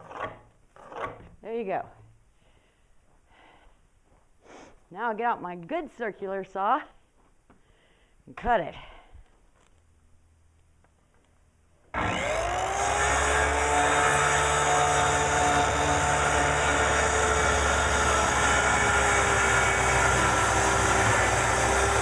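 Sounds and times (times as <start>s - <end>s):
circular saw cutting board: 11.9s - 22.0s.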